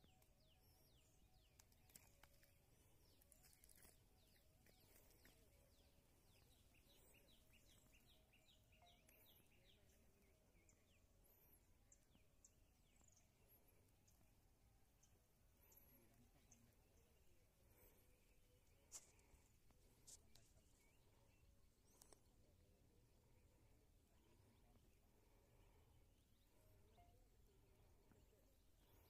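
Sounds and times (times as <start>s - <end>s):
faint birdsong chirps: 0.0s - 29.0s.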